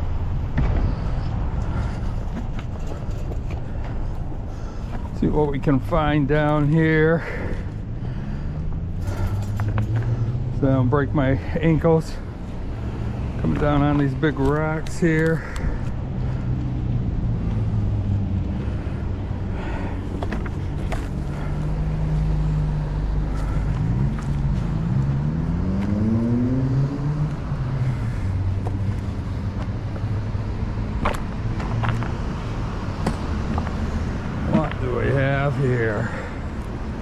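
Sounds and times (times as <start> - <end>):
road traffic rumbling: 0.0 - 37.0
vehicle engine accelerating: 7.8 - 11.5, 15.3 - 37.0.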